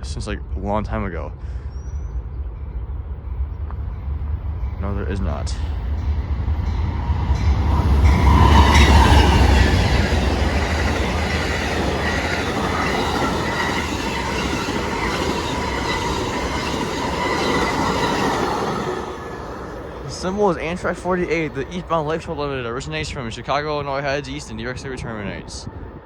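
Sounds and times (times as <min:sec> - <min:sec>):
diesel locomotive rumble: 0:00.0 - 0:26.0
train wheels clattering on rails: 0:03.5 - 0:24.2.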